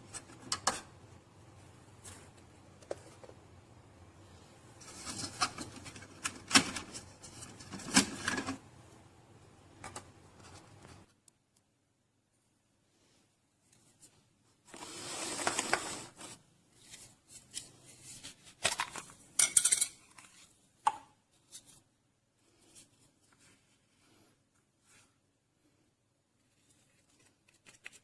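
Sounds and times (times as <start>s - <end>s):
rustling: 26.4s - 28.0s.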